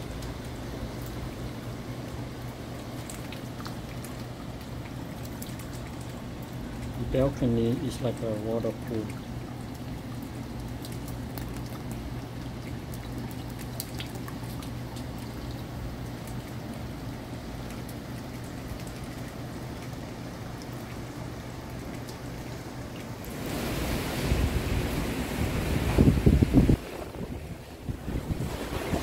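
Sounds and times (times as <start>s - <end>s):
steady low hum: 0.0s - 29.0s
water pouring and dripping: 0.0s - 29.0s
heavy rain falling: 21.0s - 29.0s.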